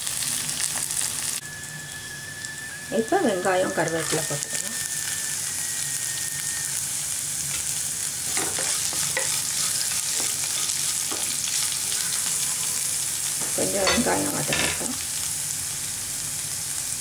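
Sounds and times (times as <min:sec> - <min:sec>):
onion sizzling in hot oil: 0:00.0 - 0:17.0
wooden spatula scraping a pan: 0:08.2 - 0:14.0.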